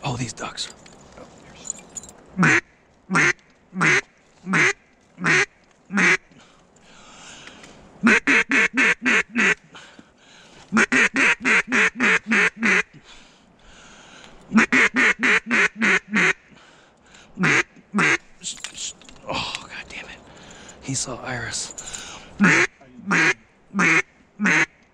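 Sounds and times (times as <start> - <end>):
duck call quacks: 2.4 - 6.2, 8.0 - 9.6, 10.7 - 12.9, 14.5 - 16.4, 17.4 - 18.2, 22.4 - 24.8.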